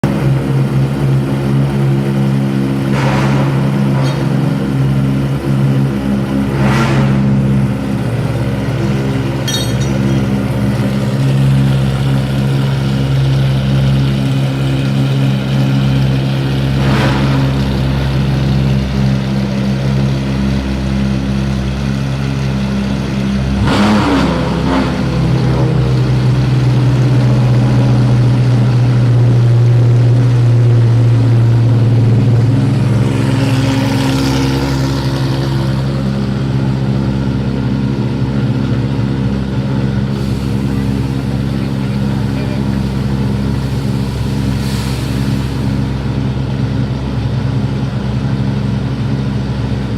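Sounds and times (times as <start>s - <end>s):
car engine fast idle: 0.1s - 37.6s, 39.6s - 49.8s.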